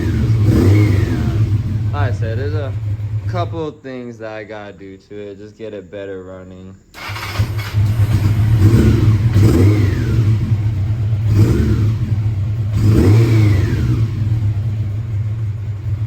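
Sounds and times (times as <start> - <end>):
motorcycle engine revving: 0.0 - 3.8, 6.9 - 16.0
man talking: 0.2 - 6.9.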